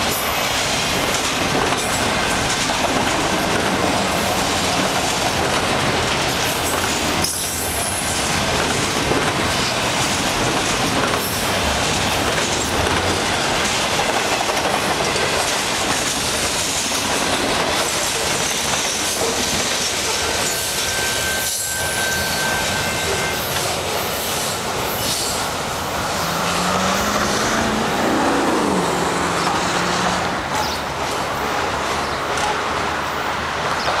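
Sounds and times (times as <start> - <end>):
train wheels rumbling and clattering: 0.0 - 34.0
thin wheel squeal: 20.4 - 23.5.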